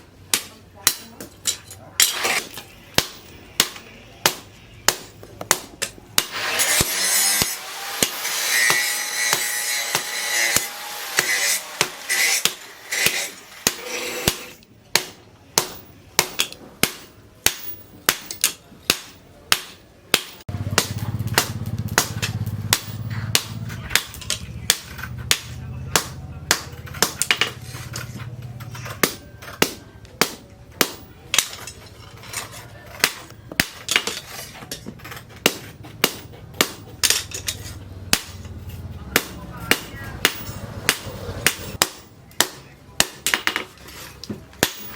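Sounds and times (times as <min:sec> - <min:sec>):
hammer striking hot steel on anvil: 0:00.3 - 0:28.1, 0:28.8 - 0:31.8, 0:33.0 - 0:38.5, 0:39.1 - 0:43.7, 0:44.6 - 0:44.9.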